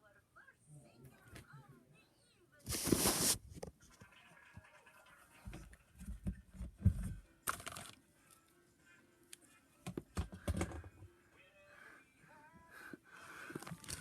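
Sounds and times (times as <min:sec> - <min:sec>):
rustling: 0:02.7 - 0:03.9.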